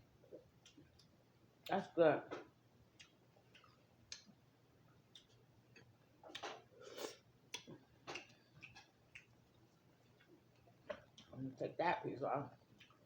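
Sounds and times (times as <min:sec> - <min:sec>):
wet mouth clicks chewing: 0:05.1 - 0:09.4.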